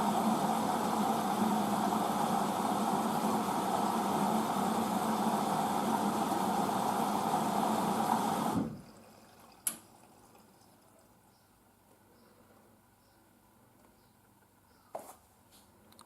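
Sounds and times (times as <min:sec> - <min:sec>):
machine hum: 0:00.0 - 0:09.0
water rushing into washing machine: 0:00.0 - 0:11.2.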